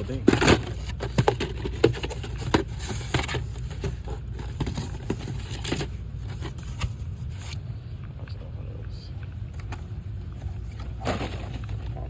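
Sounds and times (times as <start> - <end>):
objects being handled: 0.0 - 7.7
steady low hum: 0.0 - 12.0.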